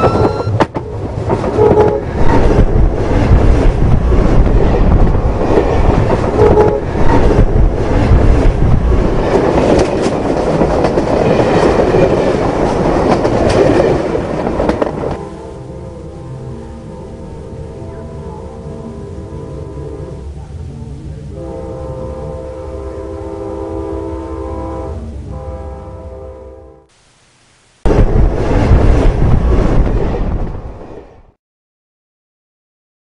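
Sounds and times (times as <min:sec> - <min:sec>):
wheels clickety-clack over rails: 0:00.0 - 0:15.2
train passing overhead rumbling: 0:00.0 - 0:26.9, 0:27.9 - 0:31.4.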